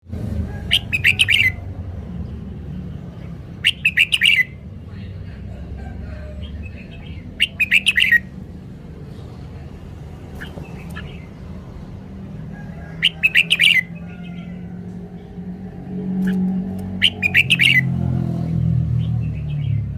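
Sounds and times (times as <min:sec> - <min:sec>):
bulbul singing: 0:00.6 - 0:01.7, 0:03.0 - 0:04.7, 0:06.2 - 0:12.2, 0:12.8 - 0:15.4, 0:16.1 - 0:19.9.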